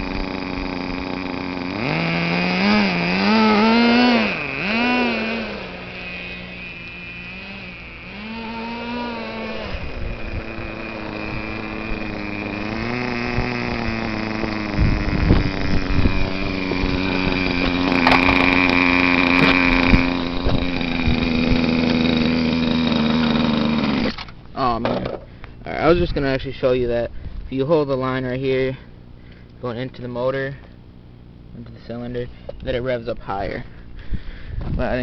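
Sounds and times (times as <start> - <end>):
small two-stroke engine revving: 0.0 - 24.4.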